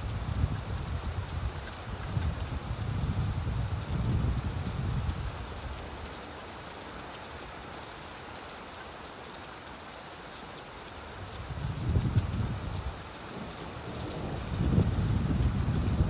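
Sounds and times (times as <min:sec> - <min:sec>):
steady rain falling: 0:00.0 - 0:16.0
low rumble of thunder: 0:11.4 - 0:16.0.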